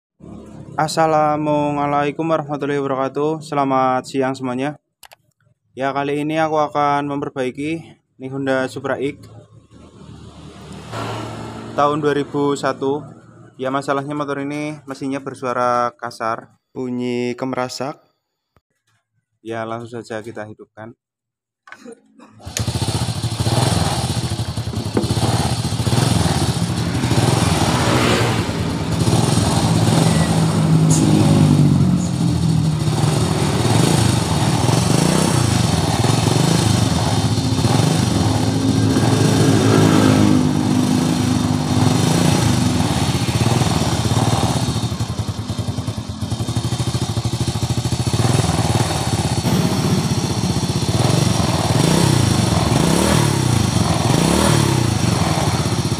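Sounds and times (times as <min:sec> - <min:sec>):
clattery engine rattle: 0:22.4 - 0:28.0
motorcycle engine idling: 0:22.4 - 0:55.9.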